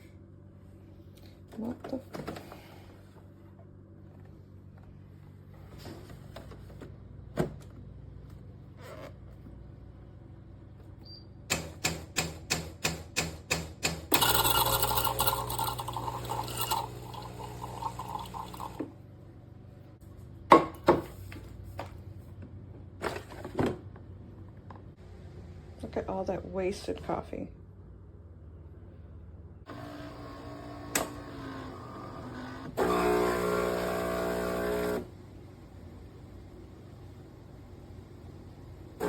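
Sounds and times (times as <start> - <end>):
espresso machine hissing and humming: 14.1 - 18.9, 29.7 - 35.2
liquid pouring: 15.0 - 18.8.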